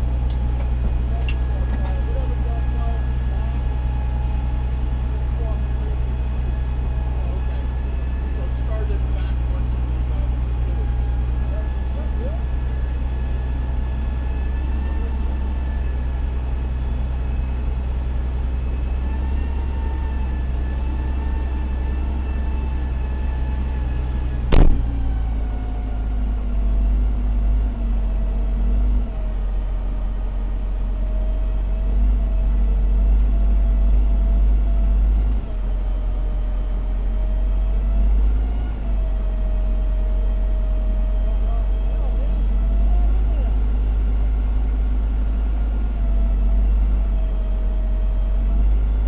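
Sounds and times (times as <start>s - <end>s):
diesel engine running: 0.0s - 49.0s
sharp knock: 24.5s - 24.9s.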